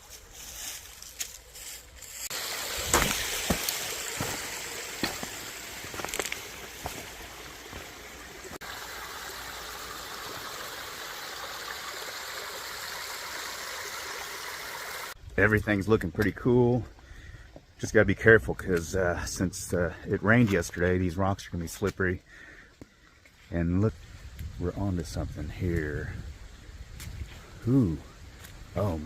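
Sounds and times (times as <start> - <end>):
creek water running over rocks: 0.4 - 16.8, 22.8 - 29.0.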